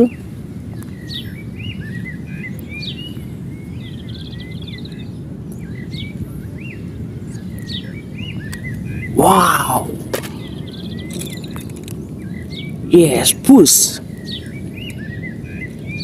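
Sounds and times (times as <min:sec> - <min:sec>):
birds chirping: 0:00.0 - 0:16.0
bird trill: 0:07.7 - 0:16.0.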